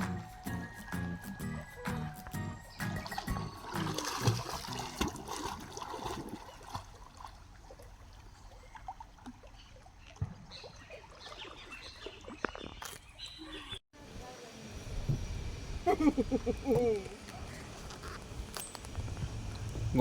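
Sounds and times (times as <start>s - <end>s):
water trickling and splashing: 2.8s - 13.2s.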